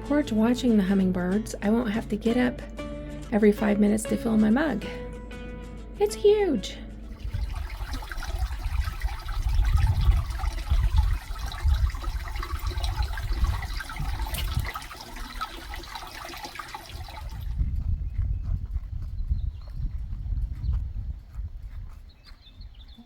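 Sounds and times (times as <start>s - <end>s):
wind buffeting microphone: 7.1s - 23.0s.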